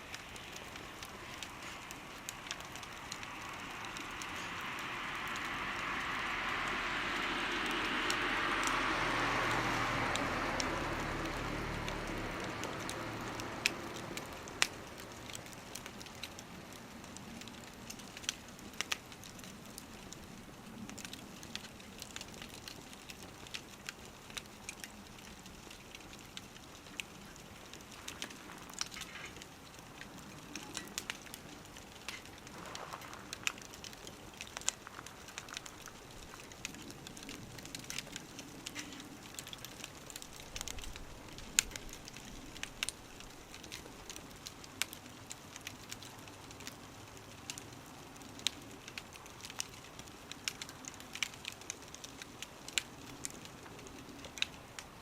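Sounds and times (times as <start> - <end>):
wood fire crackling and popping: 0.0 - 55.0
passing vehicle rumble: 0.8 - 15.6.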